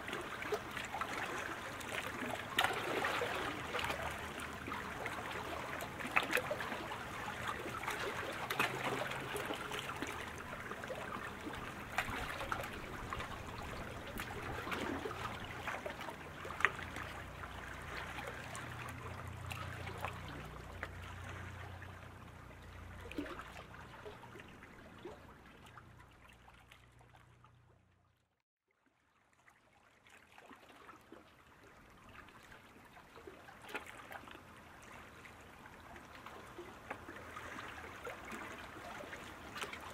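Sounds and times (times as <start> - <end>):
paddles splashing into water: 0.0 - 26.4.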